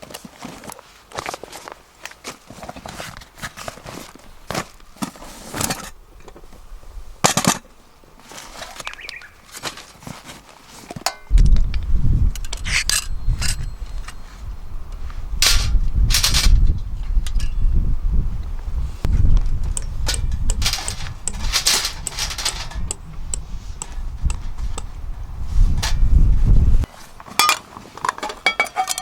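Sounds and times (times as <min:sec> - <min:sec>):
sharp clicks and knocks: 0:19.6 - 0:24.9.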